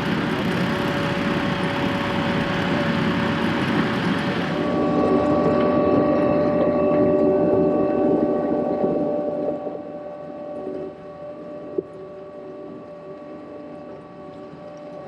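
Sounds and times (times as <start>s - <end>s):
skid steer diesel engine droning: 0.0s - 6.0s
steady whining tones: 0.0s - 15.0s.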